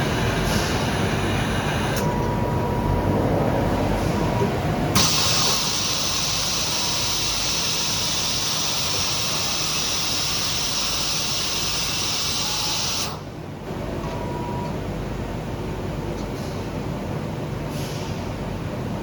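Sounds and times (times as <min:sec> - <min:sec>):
machine running noise: 0:00.0 - 0:14.8
compressed air hissing: 0:05.0 - 0:13.2.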